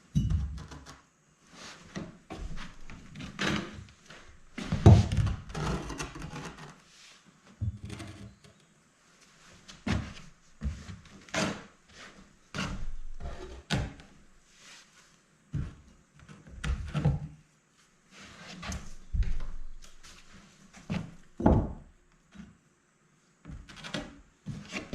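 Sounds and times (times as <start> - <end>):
irregular knocks and thuds: 4.6 - 5.5, 20.9 - 21.9.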